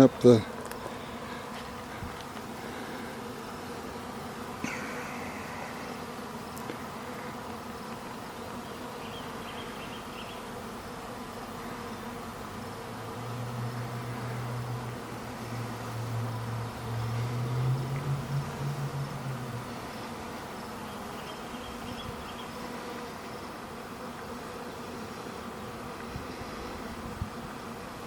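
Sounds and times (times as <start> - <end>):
bees buzzing: 0.0 - 28.0
low steady hum: 13.5 - 20.2.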